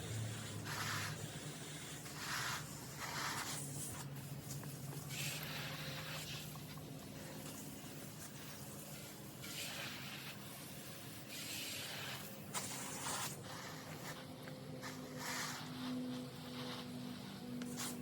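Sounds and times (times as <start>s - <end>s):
garden hose spraying water: 7.3s - 14.1s.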